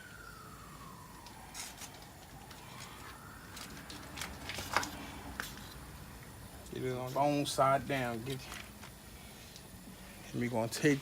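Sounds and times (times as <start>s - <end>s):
distant siren wailing: 0.0s - 5.4s.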